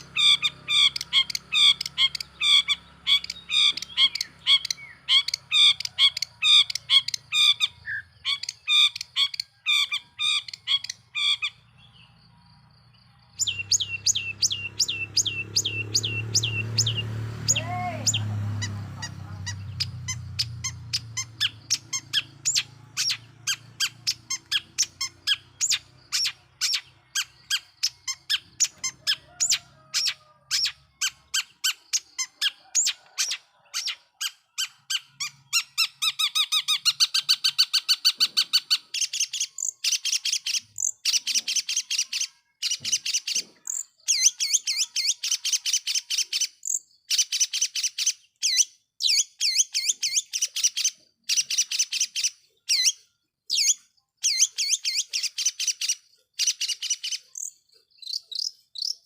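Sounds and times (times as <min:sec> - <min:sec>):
bird singing sharp notes: 0:13.3 - 0:30.0.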